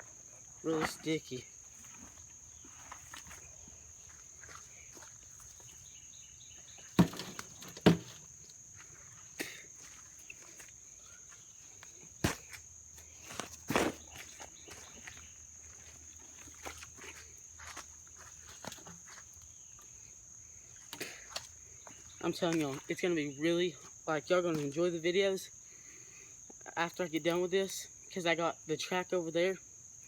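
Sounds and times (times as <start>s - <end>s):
digging and trudging in mud: 12.1s - 15.2s.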